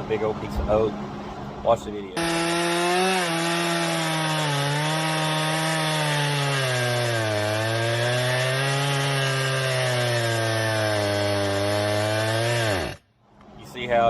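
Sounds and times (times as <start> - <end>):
chainsaw cutting log: 2.2 - 13.0.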